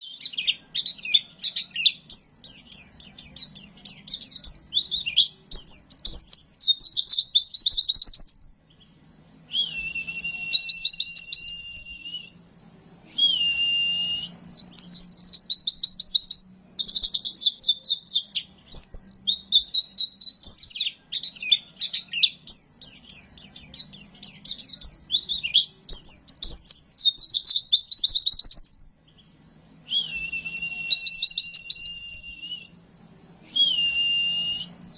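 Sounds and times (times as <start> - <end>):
bird twittering: 0.0 - 34.9
thin held whistle: 9.5 - 12.4, 13.1 - 16.2, 29.9 - 32.8, 33.5 - 34.9.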